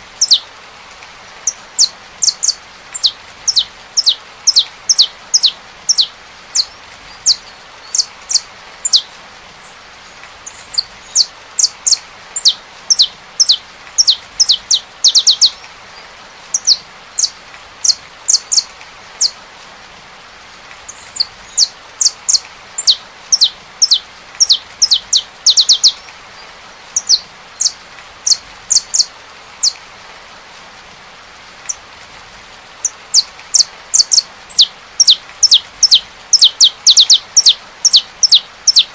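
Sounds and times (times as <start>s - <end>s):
rain hiss: 0.0s - 38.9s.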